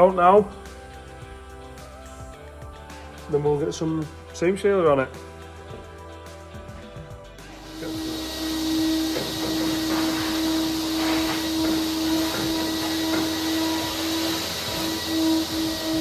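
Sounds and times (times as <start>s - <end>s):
vacuum cleaner running: 7.6s - 16.0s.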